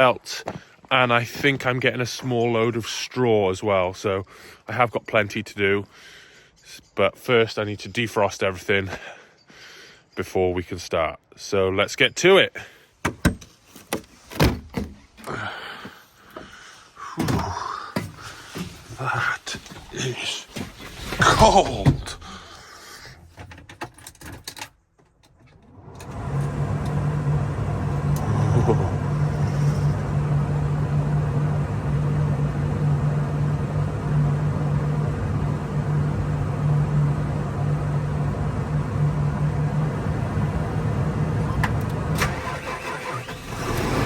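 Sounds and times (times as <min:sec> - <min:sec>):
tractor engine running: 0:25.8 - 0:44.0.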